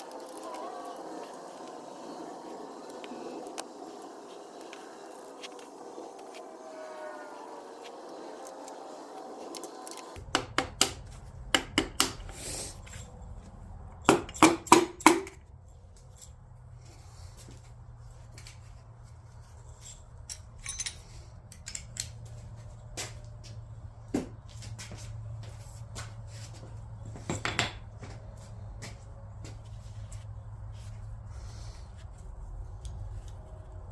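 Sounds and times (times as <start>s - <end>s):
metal tools clinking: 19.4s - 22.3s.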